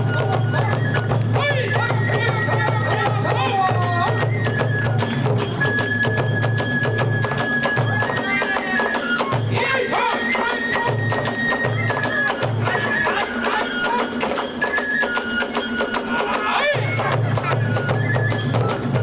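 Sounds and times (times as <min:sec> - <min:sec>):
large drum beats: 0:00.0 - 0:13.6, 0:16.2 - 0:19.0
hand cymbals clashing: 0:04.9 - 0:19.0.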